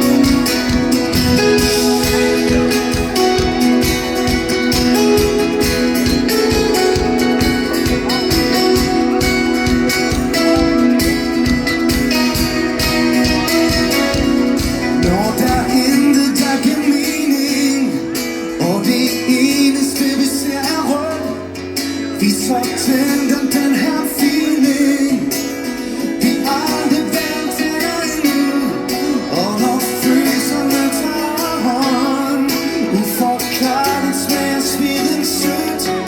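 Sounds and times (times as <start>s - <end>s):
live band playing: 0.0s - 36.0s
strummed guitars: 0.0s - 36.0s
person singing: 13.2s - 36.0s.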